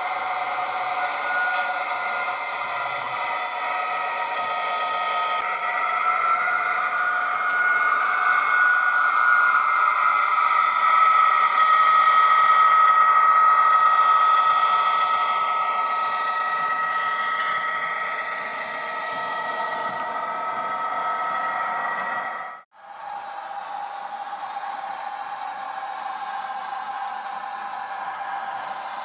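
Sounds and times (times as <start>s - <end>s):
electric motor whine: 0.0s - 22.6s.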